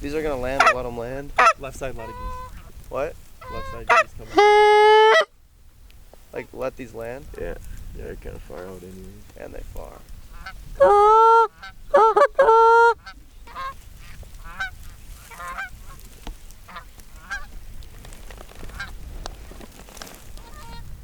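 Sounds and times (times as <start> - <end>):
geese honking: 0.0 - 2.7, 3.4 - 5.3, 10.3 - 16.0, 16.6 - 17.5, 20.4 - 20.9.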